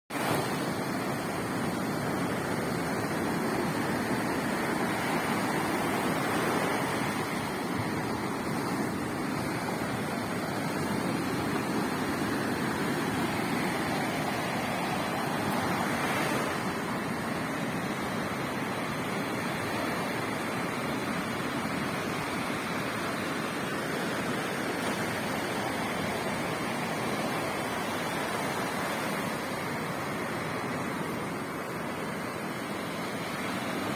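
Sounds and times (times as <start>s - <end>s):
waves breaking on beach: 0.1s - 33.9s.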